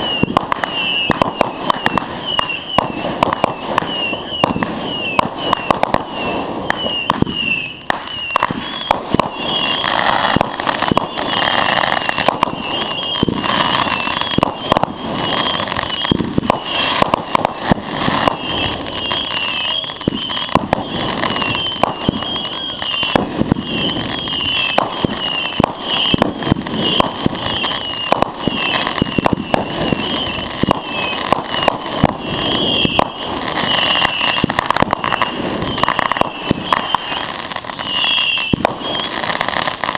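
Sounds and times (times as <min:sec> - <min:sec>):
fireworks popping and crackling: 0:00.0 - 0:39.9.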